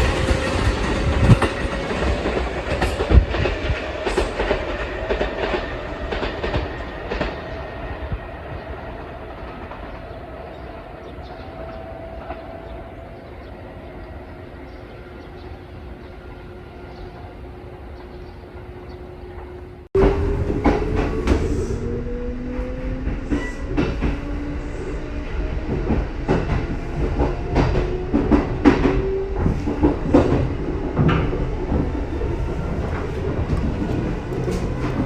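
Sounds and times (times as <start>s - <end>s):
train wheels clacking over rail joints: 25.1s - 35.0s.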